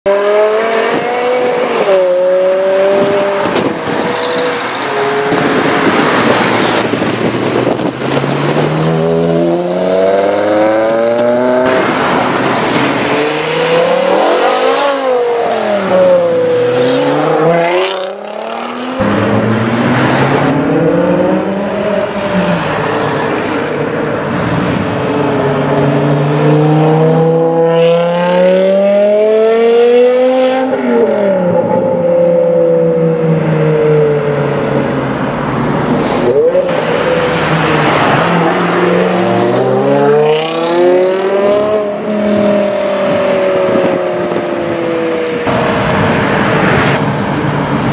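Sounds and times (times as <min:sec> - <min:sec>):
car engines accelerating hard: 0:00.1 - 0:47.9.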